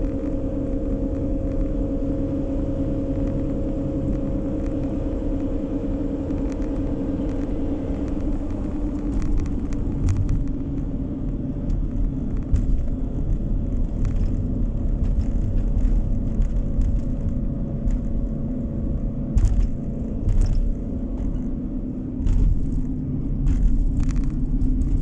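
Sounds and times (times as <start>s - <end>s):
car engine hum: 0.0s - 25.0s
tyre and road rumble: 0.0s - 25.0s.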